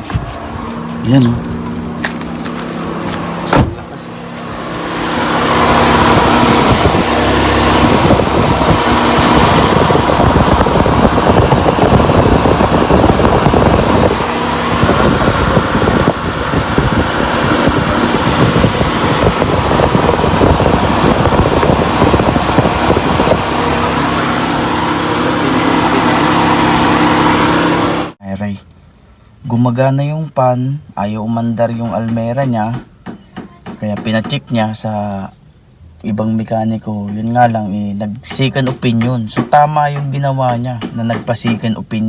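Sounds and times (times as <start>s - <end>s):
air rushing over microphone: 0.0s - 28.2s
electric cooling fan running: 0.0s - 28.2s.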